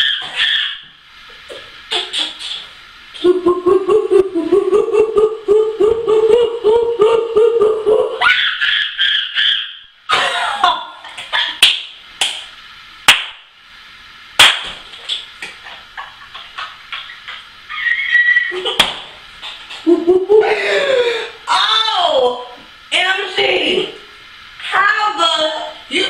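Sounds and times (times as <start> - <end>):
boy imitating monkey hoots: 0.0 - 0.8, 3.2 - 9.8, 17.7 - 18.8
laughter: 8.3 - 11.6, 15.6 - 21.0
sharp smacks: 13.1 - 13.4, 14.4 - 15.2.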